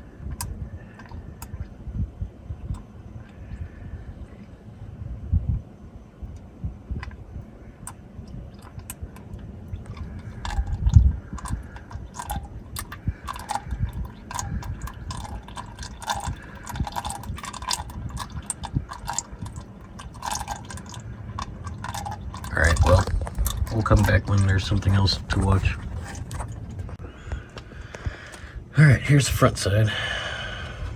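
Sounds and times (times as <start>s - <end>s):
oil dripping into bucket: 0.0s - 1.8s, 6.3s - 28.5s.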